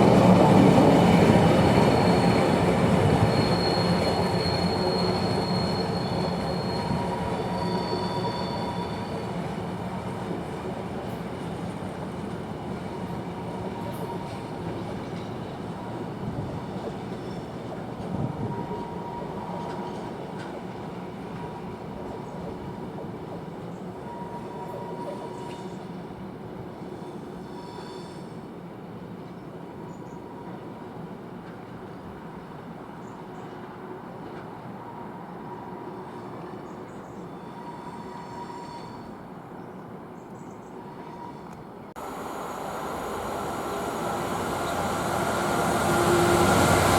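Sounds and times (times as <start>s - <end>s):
train wheels on rails: 0.0s - 39.4s, 40.8s - 46.9s
wheel squeal: 1.7s - 9.3s.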